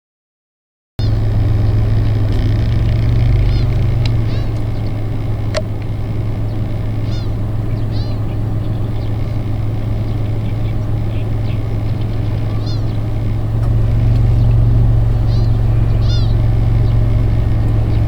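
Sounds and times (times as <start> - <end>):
gulls calling: 1.0 - 18.0
low rumble: 1.0 - 18.0
sharp click: 2.3 - 4.7, 5.5 - 5.9.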